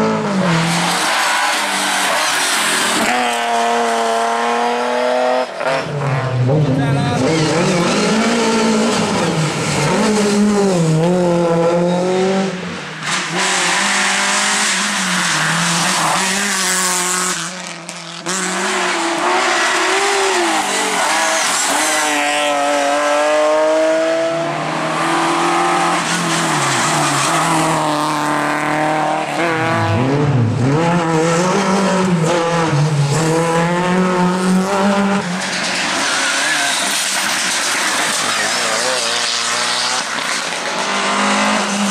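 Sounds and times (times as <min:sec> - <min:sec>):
rally car engines revving: 0:00.0 - 0:41.9
tyres squealing and skidding: 0:00.5 - 0:03.9, 0:06.8 - 0:11.0, 0:11.6 - 0:17.5, 0:18.4 - 0:23.5, 0:24.8 - 0:28.5, 0:35.2 - 0:41.9.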